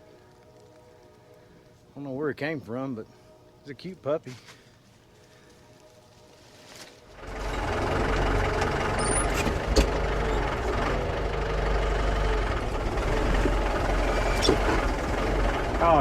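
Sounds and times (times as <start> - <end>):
tractor diesel engine running: 7.1 - 16.0.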